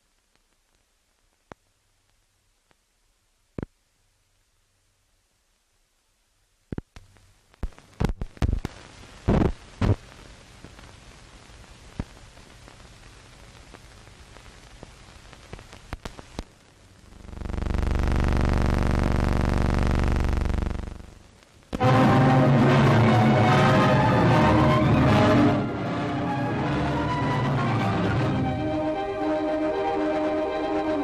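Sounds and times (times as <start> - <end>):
film soundtrack hiss and pops: 0.0 - 31.0
buzzing hum: 15.3 - 22.4.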